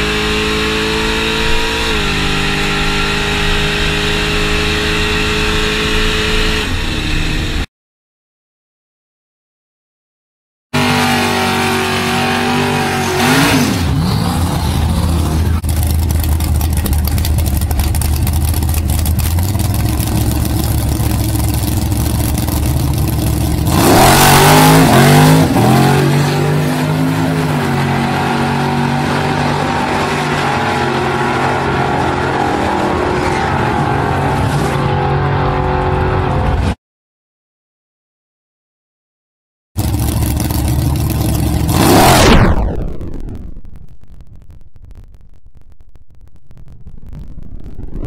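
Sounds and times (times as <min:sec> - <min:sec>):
loud v-eight engine revving: 0:00.0 - 0:07.7, 0:10.8 - 0:36.6, 0:39.8 - 0:42.6.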